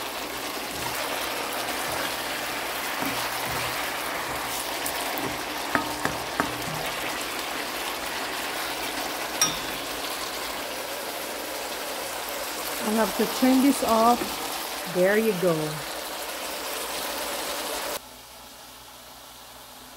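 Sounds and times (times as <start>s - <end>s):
spatula stirring: 0.0s - 10.6s
vegetables sizzling in a wok: 0.0s - 19.9s
spatula knocking against pan: 1.7s - 7.2s, 9.4s - 10.1s.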